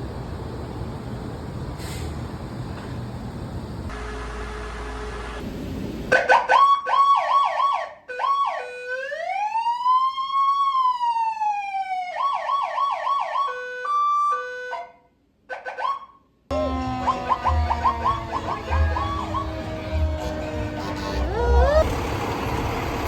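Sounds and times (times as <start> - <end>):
fire engine siren: 6.1 - 15.0, 15.7 - 23.0.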